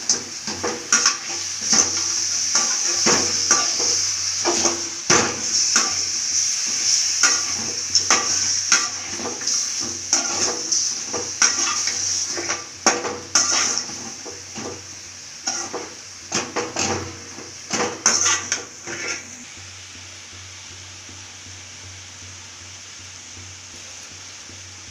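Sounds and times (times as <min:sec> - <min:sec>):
food sizzling in a pan: 0:00.0 - 0:24.9
spoon scraping a pan: 0:00.1 - 0:14.8, 0:15.4 - 0:17.1, 0:17.7 - 0:19.4.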